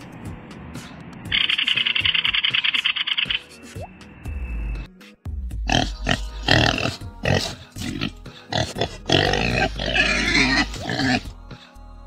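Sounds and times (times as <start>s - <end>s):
pig grunting: 5.7s - 11.4s.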